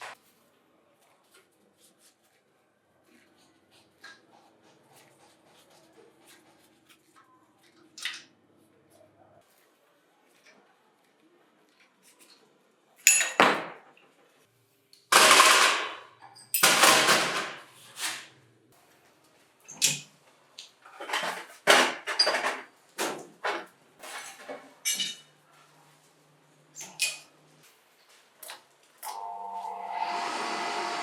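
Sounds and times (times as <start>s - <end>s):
metal parts knocking and clanking: 15.1s - 17.6s, 20.9s - 25.3s.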